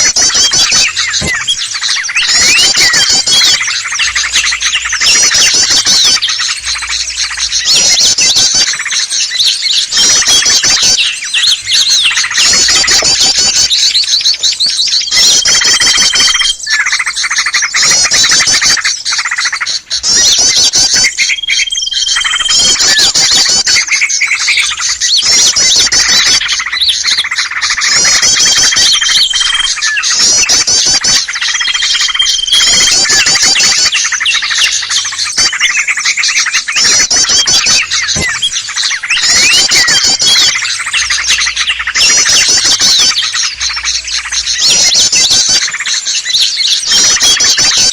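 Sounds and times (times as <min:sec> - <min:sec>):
songbirds twittering: 0:00.0 - 0:47.9.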